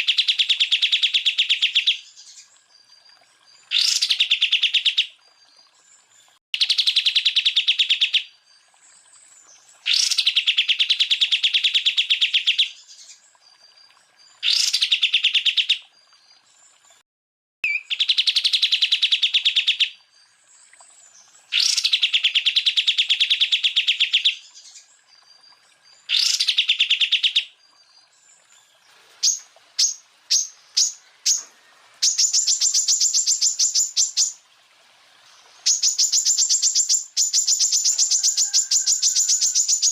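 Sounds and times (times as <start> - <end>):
bird singing rapid trills: 29.2 - 34.4, 35.6 - 39.9.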